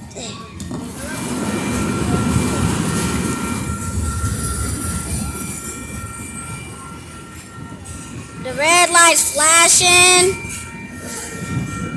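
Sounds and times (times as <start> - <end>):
train rumbling on rails: 0.7 - 8.5
high-pitched tone: 8.5 - 10.5.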